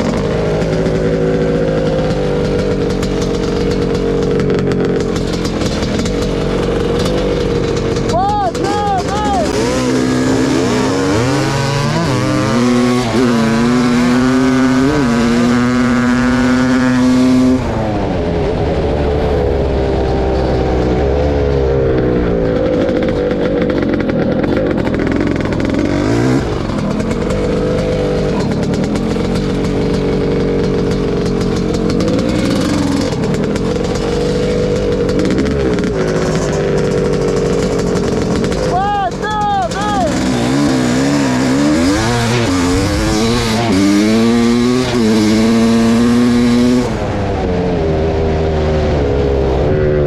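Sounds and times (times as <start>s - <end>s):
two-stroke motorcycle engine revving: 0.0s - 50.0s.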